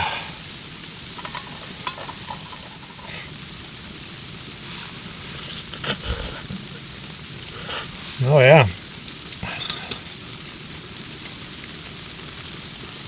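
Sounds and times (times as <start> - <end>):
camp stove hissing: 0.0 - 13.0
soup simmering in a pot: 0.0 - 13.0
light utensil clicks: 1.2 - 3.4, 9.4 - 10.2.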